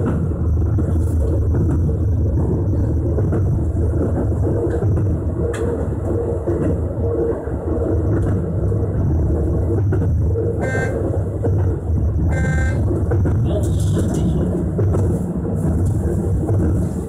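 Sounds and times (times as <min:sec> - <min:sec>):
train wheels and motors rumbling: 0:00.0 - 0:17.0
short train horn toots: 0:10.6 - 0:11.0, 0:12.3 - 0:12.8.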